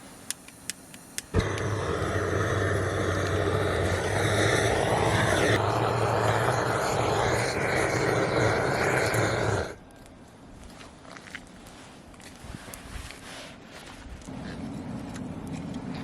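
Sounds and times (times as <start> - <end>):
electric fan motor humming: 1.2 - 9.8.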